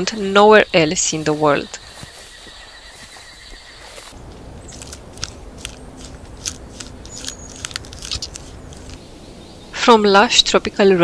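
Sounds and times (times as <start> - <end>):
faint forest ambience: 0.0 - 11.0
steady background hiss: 0.0 - 11.0
bat squeaks and clicks: 1.7 - 9.1.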